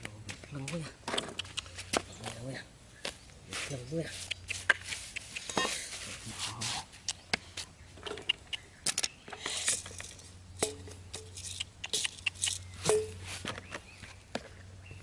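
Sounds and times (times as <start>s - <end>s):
scraping and rustling: 9.3s - 14.2s.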